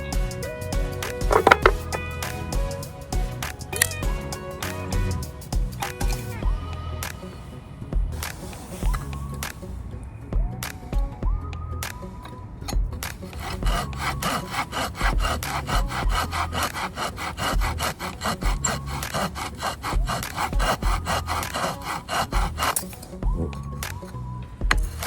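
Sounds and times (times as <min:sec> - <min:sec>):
hand saw cutting firewood: 0:01.2 - 0:02.6, 0:13.3 - 0:23.0.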